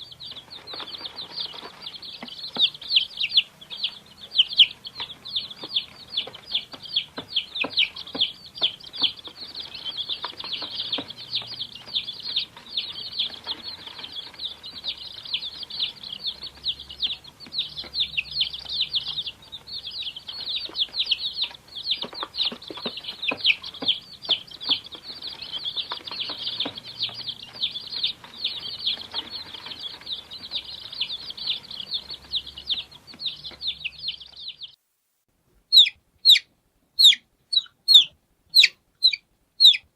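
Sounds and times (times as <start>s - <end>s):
chicks peeping: 0.0s - 34.8s, 35.7s - 39.9s.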